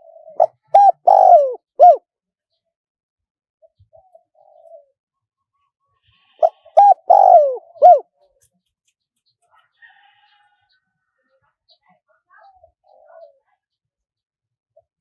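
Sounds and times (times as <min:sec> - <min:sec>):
dove cooing: 0:00.0 - 0:02.0, 0:03.7 - 0:05.0, 0:06.4 - 0:08.1, 0:12.4 - 0:13.4.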